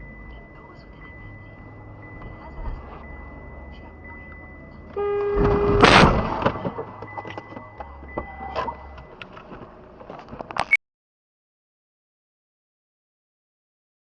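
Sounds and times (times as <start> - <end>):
car horn: 4.9 - 6.6
vehicles crashing: 5.0 - 10.5.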